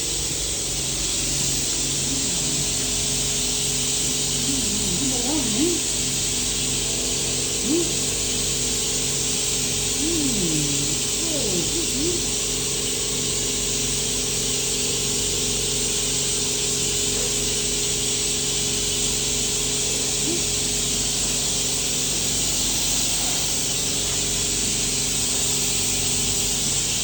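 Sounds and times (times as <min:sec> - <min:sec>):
electrical hum: 0:01.6 - 0:06.3, 0:09.7 - 0:12.4.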